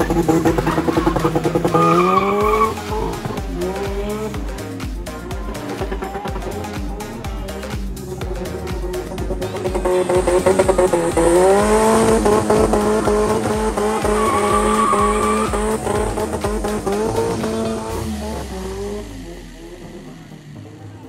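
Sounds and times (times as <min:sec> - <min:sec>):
tyres squealing: 0:00.0 - 0:03.3, 0:09.7 - 0:18.1
background music with beat: 0:00.0 - 0:21.0
car engine at high revs: 0:00.0 - 0:21.0.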